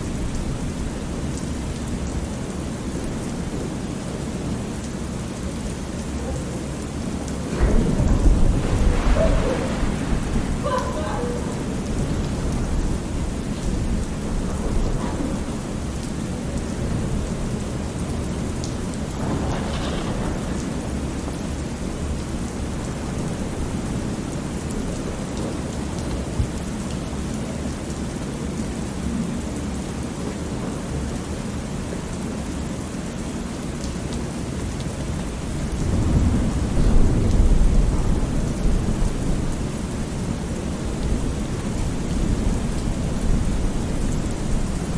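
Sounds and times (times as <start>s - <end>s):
steady rain: 0.0s - 44.9s
rolling thunder: 6.7s - 25.4s, 35.4s - 44.9s.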